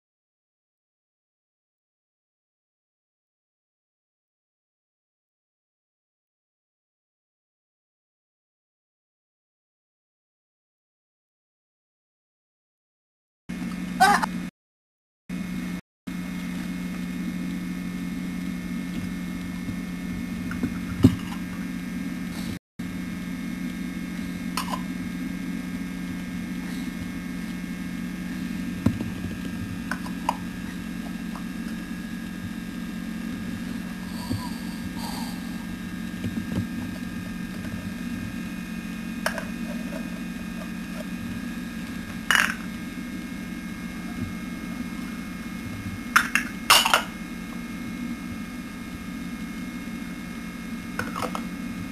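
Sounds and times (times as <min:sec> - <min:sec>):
steady low hum: 0:15.3 - 0:51.9.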